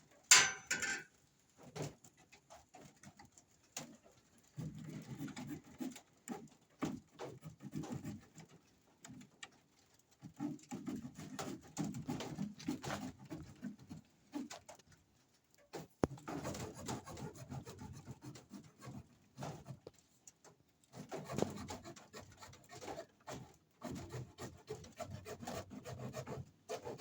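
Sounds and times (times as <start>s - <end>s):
clicks and knocks: 0.3s - 1.1s.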